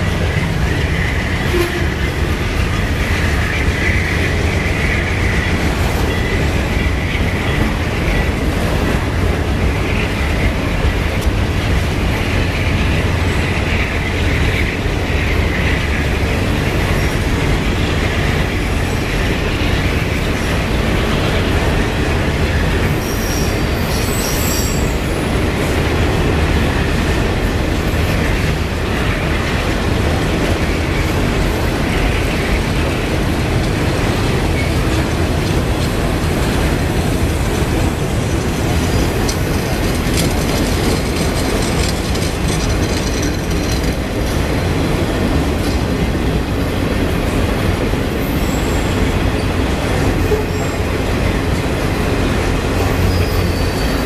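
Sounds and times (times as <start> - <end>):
train wheels rumbling on track: 0.0 - 54.0
wheel squeals: 22.8 - 25.4, 37.5 - 44.1, 52.7 - 54.0.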